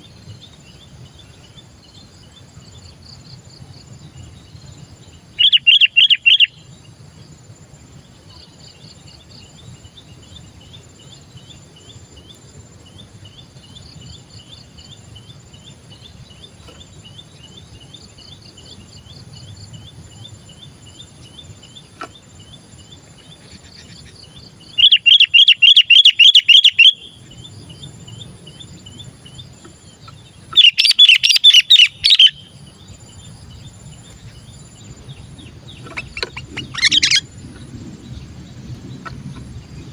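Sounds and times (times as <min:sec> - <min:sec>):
bulbul chattering calls: 0:05.4 - 0:06.6, 0:13.3 - 0:38.3.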